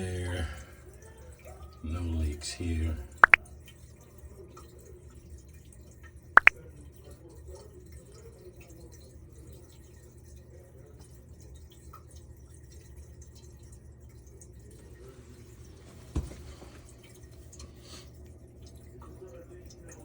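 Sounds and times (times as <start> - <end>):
drain water running through pipes: 0.0 - 20.0
faint dripping: 0.0 - 20.0
sharp plinks: 3.2 - 3.4.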